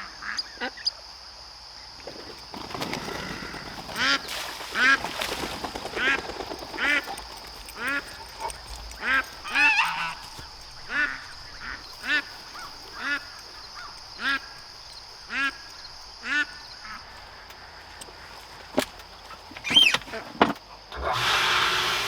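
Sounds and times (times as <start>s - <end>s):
goose honking: 9.0s - 14.5s.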